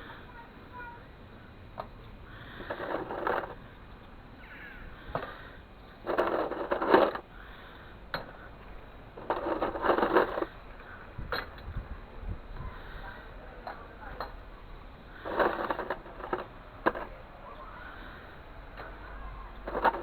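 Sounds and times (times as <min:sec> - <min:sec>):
metal scraping and clinking: 0:02.4 - 0:03.6, 0:05.0 - 0:07.3, 0:08.2 - 0:11.7, 0:15.1 - 0:17.2, 0:18.8 - 0:20.0.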